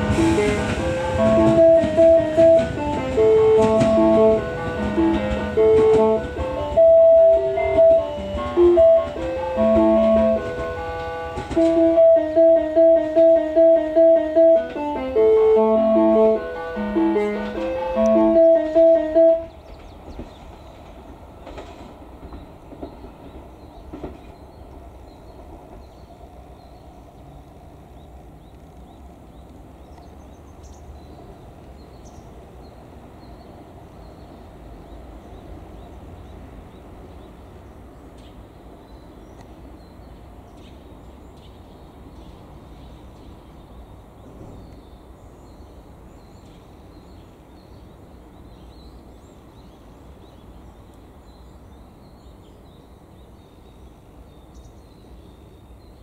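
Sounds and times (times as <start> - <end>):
electric train running: 0.0 - 19.6
wheels clicking over rail joints: 0.0 - 26.1.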